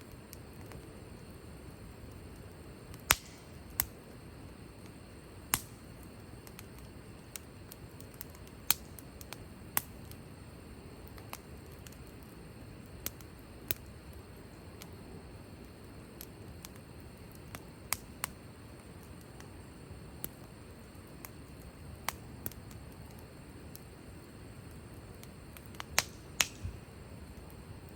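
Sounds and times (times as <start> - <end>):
flames hissing: 0.0 - 27.9
burning wood popping and snapping: 2.1 - 4.0, 5.5 - 10.2, 16.2 - 27.9.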